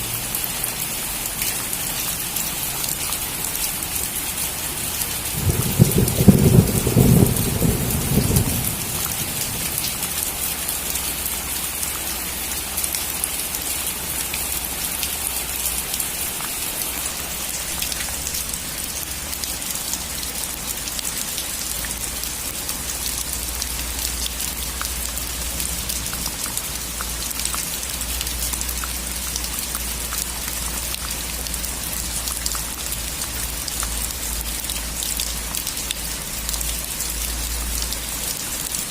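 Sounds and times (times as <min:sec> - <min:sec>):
rain on a roof: 0:00.0 - 0:38.9
thunder rumble: 0:05.3 - 0:10.3.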